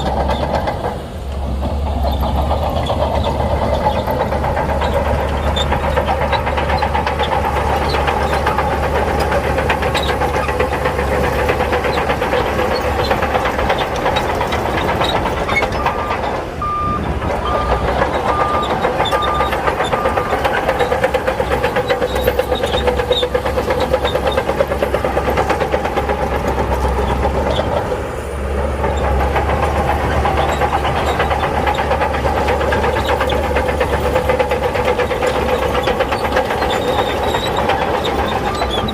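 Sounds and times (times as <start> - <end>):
heavy diesel engine running: 0.0 - 38.9
reversing alarm beeps: 15.8 - 20.4.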